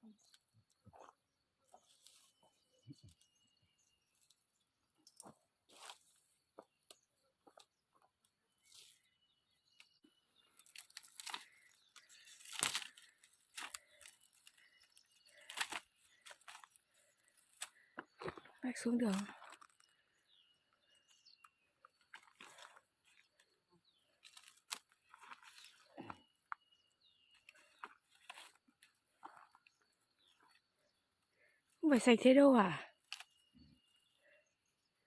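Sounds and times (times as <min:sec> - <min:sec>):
dry branches crackling and snapping: 0:09.8 - 0:19.9, 0:21.9 - 0:23.5, 0:24.1 - 0:26.2, 0:27.4 - 0:29.6, 0:33.0 - 0:33.4.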